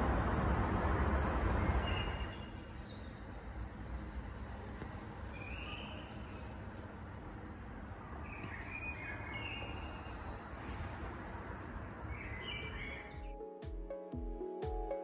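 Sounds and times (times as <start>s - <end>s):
low city rumble: 0.0s - 13.2s
songbirds singing: 1.6s - 13.3s.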